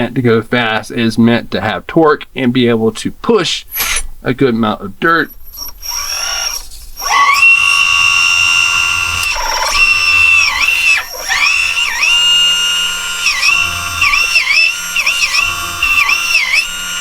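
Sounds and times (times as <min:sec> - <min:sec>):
high electric motor whine: 0:05.6 - 0:17.0.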